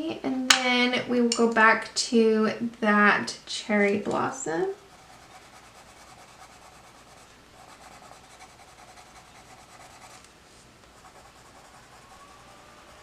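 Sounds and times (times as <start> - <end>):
coloured pencil scratching on paper: 4.9 - 10.3, 10.9 - 13.0.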